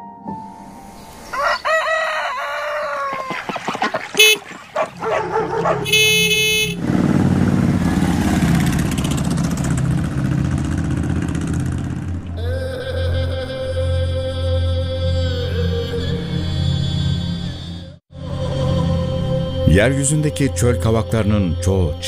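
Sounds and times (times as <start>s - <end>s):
rooster crowing: 1.2s - 6.2s
motorbike engines running: 3.1s - 12.4s
vehicle horn honking: 4.2s - 4.6s, 5.7s - 7.0s.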